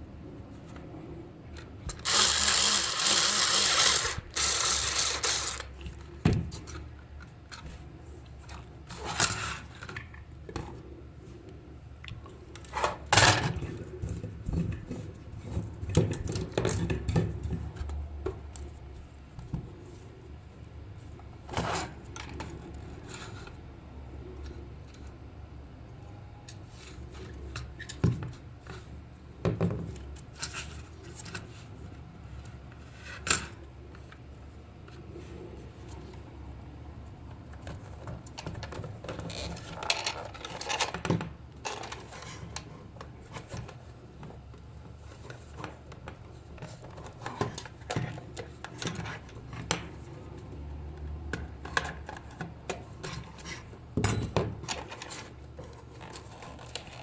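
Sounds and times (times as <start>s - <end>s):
small hard objects clattering: 2.0s - 5.7s.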